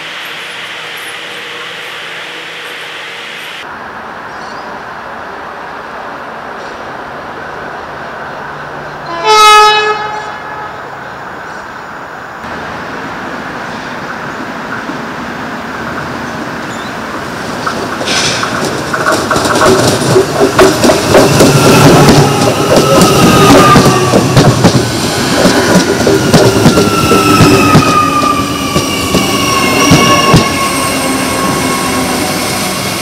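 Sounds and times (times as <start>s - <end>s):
electric train passing: 0.0s - 33.0s
train horn blast: 9.0s - 10.9s
wheels clicking over rail joints: 17.4s - 28.0s.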